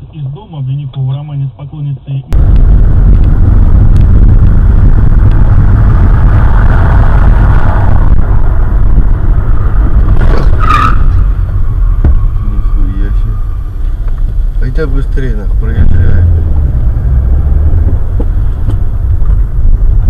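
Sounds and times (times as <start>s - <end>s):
road and engine rumble: 0.0s - 20.0s
brief high-pitched squeal: 10.5s - 11.3s.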